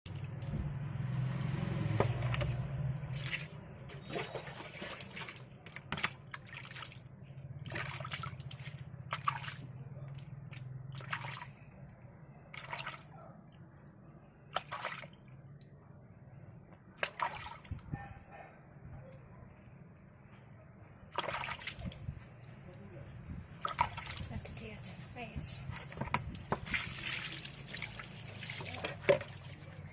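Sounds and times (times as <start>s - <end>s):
bath water sloshing and splashing: 0.1s - 13.1s, 14.4s - 15.7s, 17.0s - 17.8s, 21.1s - 22.2s, 23.4s - 24.6s, 25.5s - 29.9s.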